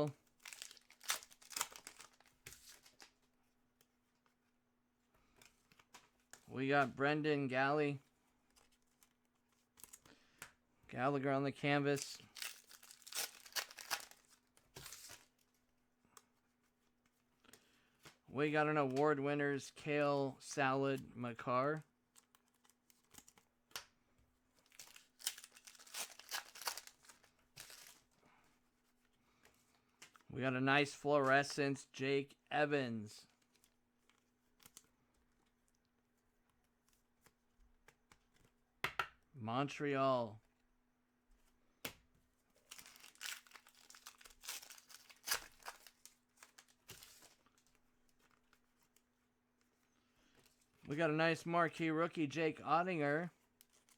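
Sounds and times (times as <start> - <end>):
card pack wrapper crinkling: 0.3 - 3.2, 12.0 - 15.4, 24.6 - 28.2, 42.6 - 49.0.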